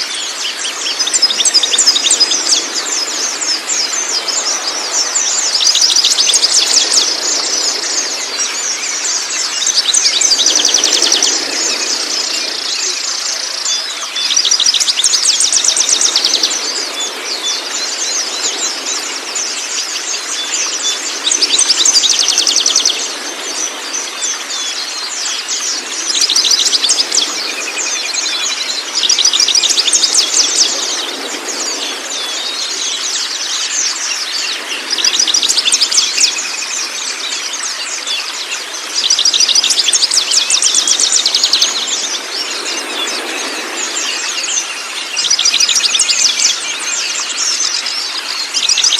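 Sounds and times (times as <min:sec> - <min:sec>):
flowing water: 0:00.0 - 0:48.9
songbird trilling chirps: 0:24.2 - 0:48.9.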